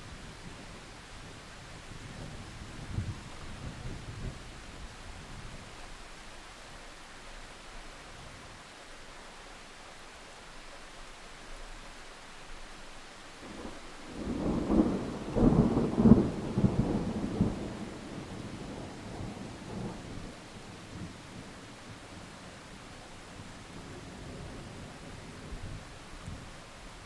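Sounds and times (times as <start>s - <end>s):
steady rain hiss: 0.0s - 27.0s
thunderclap rumbling: 13.4s - 21.5s.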